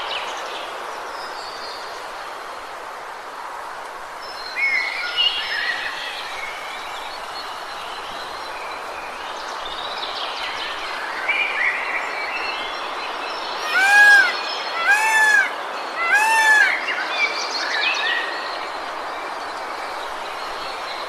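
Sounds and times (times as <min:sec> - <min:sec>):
steady rushing hiss: 0:13.0 - 0:16.8.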